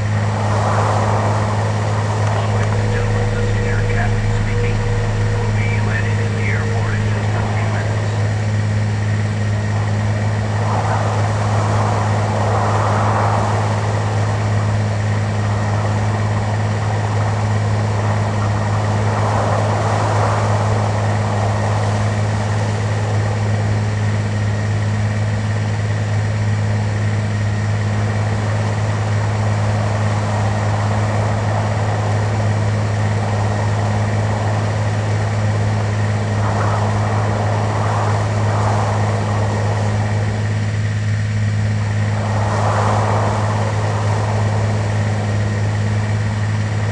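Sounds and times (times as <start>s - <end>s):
airliner engine drone: 0.0s - 46.9s
low hum: 0.0s - 46.9s
faint high tone: 2.3s - 8.4s.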